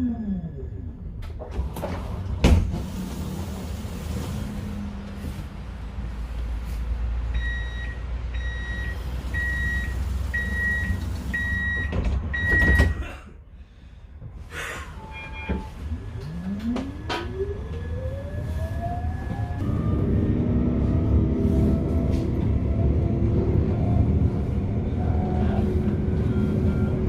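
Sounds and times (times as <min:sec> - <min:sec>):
tram doors closing thump: 0:01.3 - 0:03.8.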